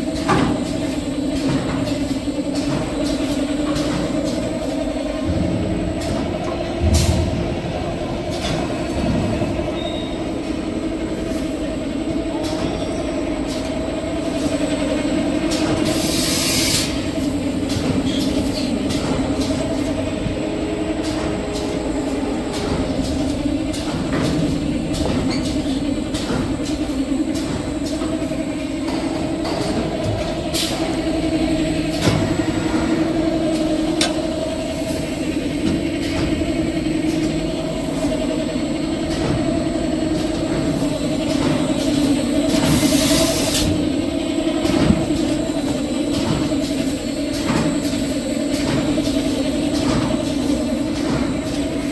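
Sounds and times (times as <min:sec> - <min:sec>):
machine humming: 0:16.8 - 0:51.9
machine clicks and knocks: 0:31.9 - 0:35.0.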